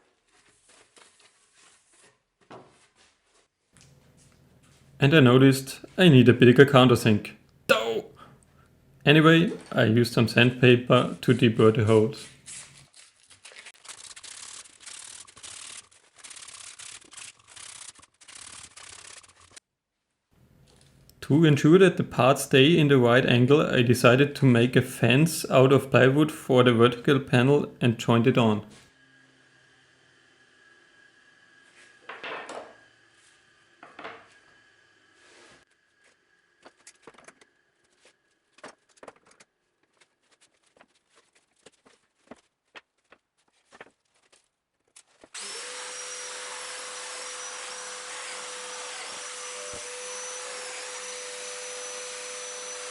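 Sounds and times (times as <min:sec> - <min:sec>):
sandpaper rubbing back and forth: 0:00.2 - 0:03.5, 0:13.6 - 0:19.6.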